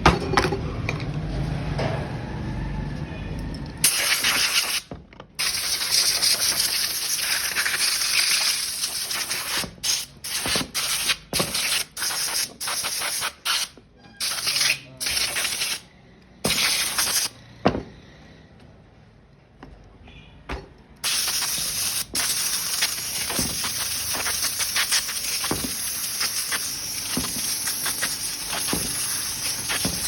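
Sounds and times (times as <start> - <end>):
pressurised spray hissing: 21.0 - 30.0.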